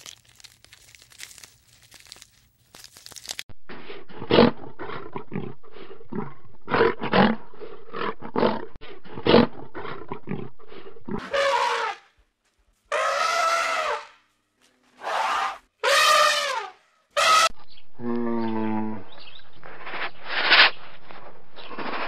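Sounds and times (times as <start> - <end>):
lion roaring: 3.9 - 11.4
animal calls falling in pitch: 12.9 - 14.1.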